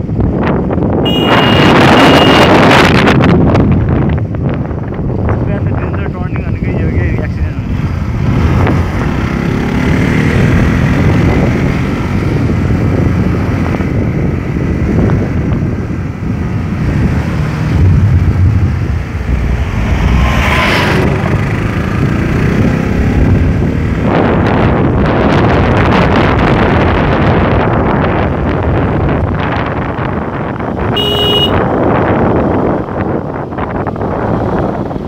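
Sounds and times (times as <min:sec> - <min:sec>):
motorcycle engine rumble: 0:00.0 - 0:35.0
wind buffeting microphone: 0:00.0 - 0:35.0.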